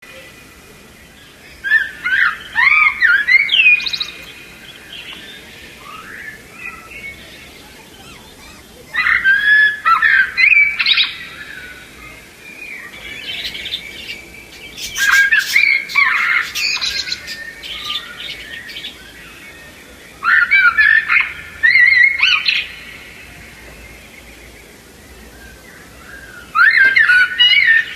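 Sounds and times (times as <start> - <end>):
budgerigars chattering and squawking: 3.9 - 9.4, 11.9 - 20.0.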